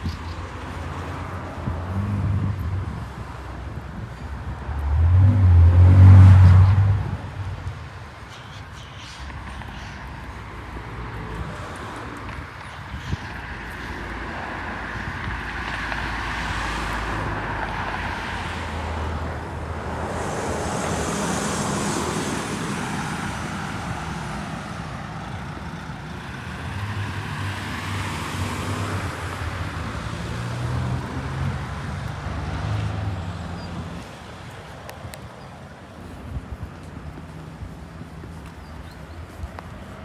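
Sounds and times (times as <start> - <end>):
low engine hum: 0.0 - 8.0
vehicles passing: 0.0 - 40.0.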